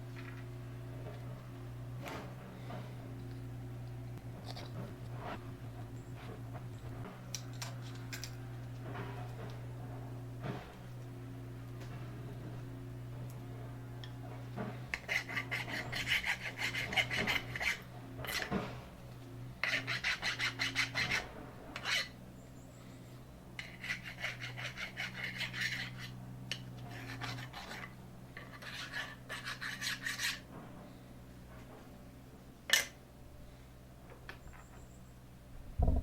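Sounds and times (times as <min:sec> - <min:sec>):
file rasping on metal: 0:14.9 - 0:18.7, 0:19.6 - 0:22.2, 0:23.6 - 0:30.5.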